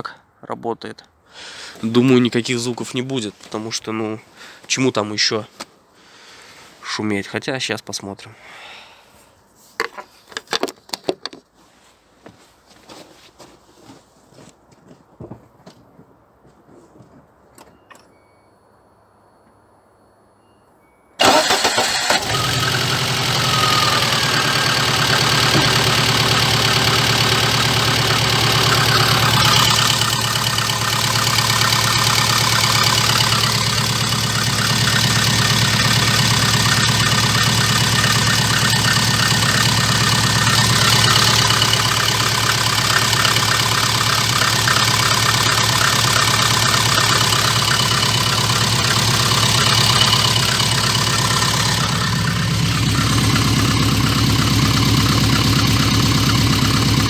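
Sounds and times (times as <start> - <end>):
car engine starting and idling: 21.2 - 57.0
low exhaust drone: 22.2 - 57.0.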